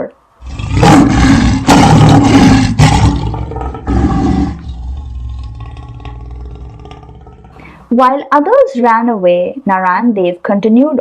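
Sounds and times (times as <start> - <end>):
lion roaring: 0.4 - 7.8.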